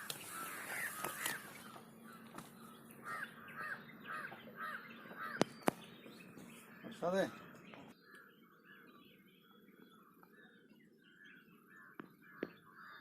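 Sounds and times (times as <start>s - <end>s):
crows cawing: 0.0s - 2.4s, 3.0s - 5.6s, 11.7s - 13.0s.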